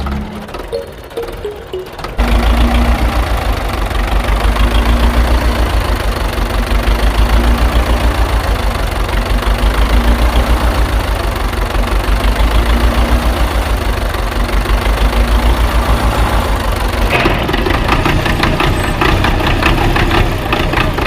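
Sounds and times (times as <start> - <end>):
music with a beat: 0.8 - 2.2.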